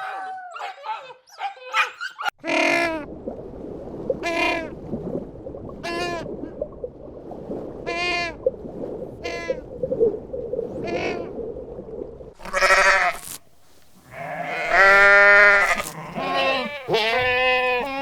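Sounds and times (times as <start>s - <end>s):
livestock bleating: 12.4s - 13.4s, 14.0s - 18.0s
low background rustle: 12.4s - 18.0s.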